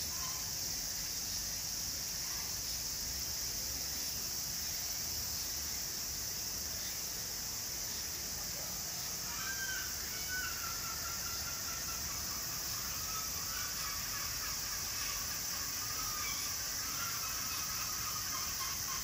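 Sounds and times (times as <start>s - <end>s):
steady high hiss: 0.0s - 19.0s
faint bird calls: 8.0s - 19.0s.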